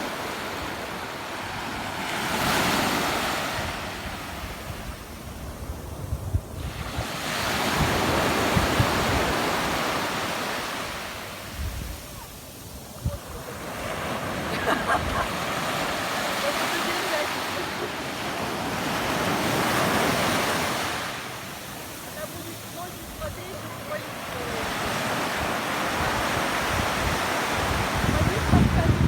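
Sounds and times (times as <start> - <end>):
sea surf washing: 0.0 - 29.0
wind buffeting microphone: 3.4 - 10.1, 11.3 - 17.2, 25.2 - 29.0.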